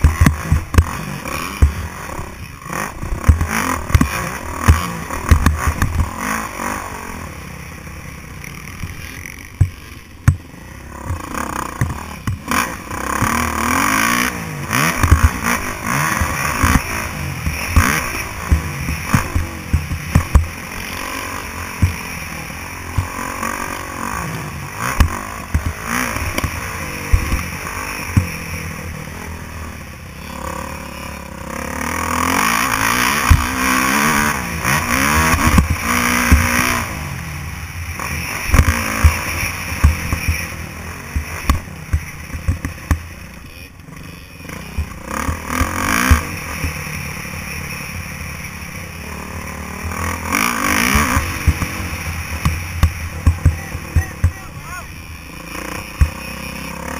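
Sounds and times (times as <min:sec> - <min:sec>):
sharp knocks and thumps: 0:00.0 - 0:01.0, 0:03.0 - 0:06.2, 0:09.5 - 0:12.5, 0:14.8 - 0:20.6, 0:21.7 - 0:22.1, 0:22.9 - 0:23.2, 0:24.9 - 0:28.4, 0:41.1 - 0:43.1, 0:52.4 - 0:54.6
dirt bike engine revving: 0:00.0 - 0:56.9.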